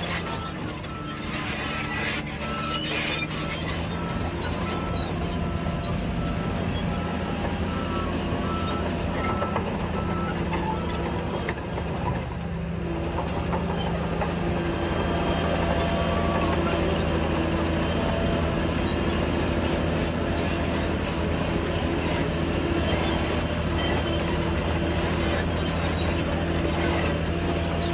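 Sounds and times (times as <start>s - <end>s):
reversing alarm beeping: 0.0s - 12.0s
heavy diesel engine running: 0.0s - 27.9s.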